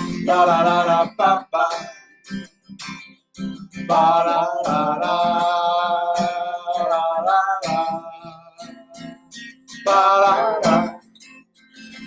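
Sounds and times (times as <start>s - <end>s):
person singing wordless melody: 0.0s - 2.1s, 3.8s - 11.2s
acoustic guitar strumming: 0.0s - 12.0s.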